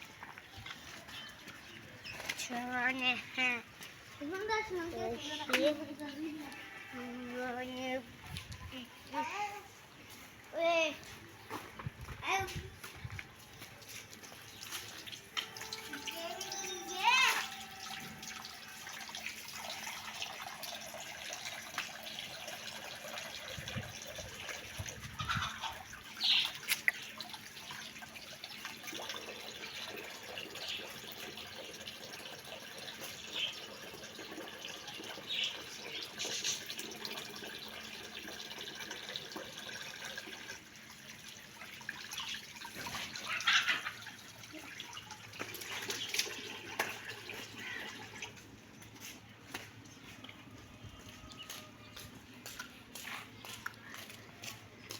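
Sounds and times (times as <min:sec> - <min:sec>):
water running: 0:13.2 - 0:54.9.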